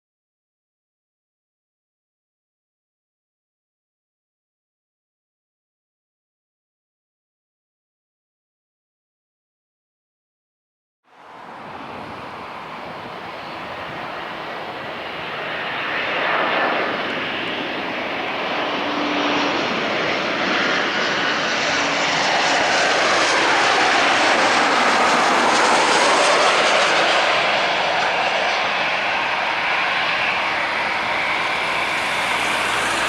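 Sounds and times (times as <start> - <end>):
jet engines roaring: 11.1 - 33.0.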